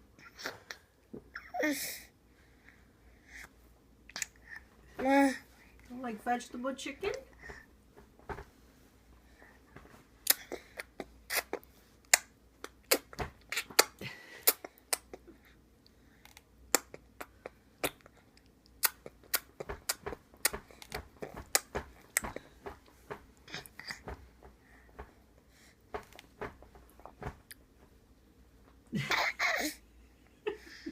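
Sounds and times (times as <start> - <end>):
food being bitten and chewed: 16.2 - 22.2.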